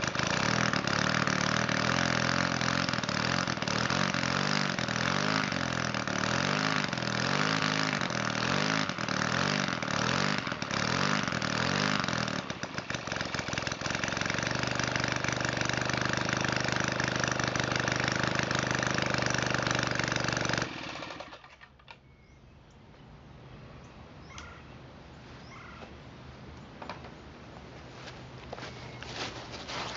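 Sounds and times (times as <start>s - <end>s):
two-stroke model engine running: 0.0s - 21.7s.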